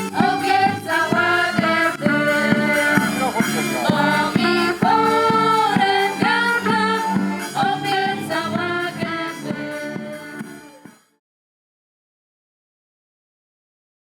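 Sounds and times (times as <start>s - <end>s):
music with singing and a beat: 0.0s - 11.1s.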